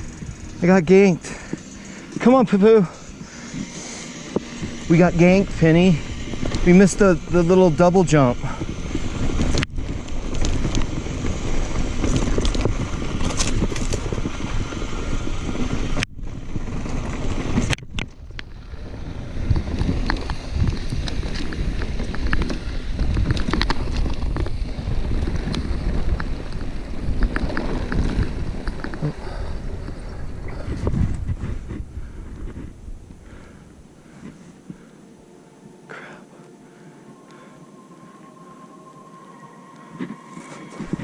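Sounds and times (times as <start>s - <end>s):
bike tyres rumbling on dirt: 0.0s - 34.9s
wind buffeting microphone: 0.0s - 35.0s, 39.9s - 41.0s.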